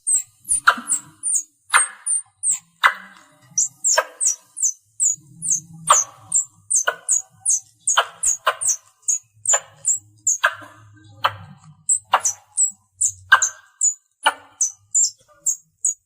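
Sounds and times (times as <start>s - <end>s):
sharp squirrel chips: 0.0s - 10.6s
squirrel chirping: 0.0s - 10.6s, 11.2s - 16.0s.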